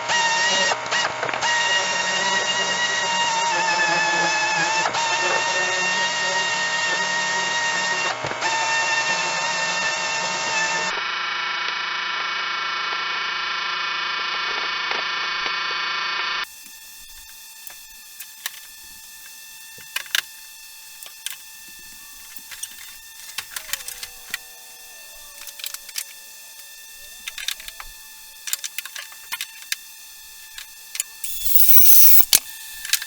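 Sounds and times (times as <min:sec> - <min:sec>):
loud steady pitched tone: 0:31.2 - 0:32.3.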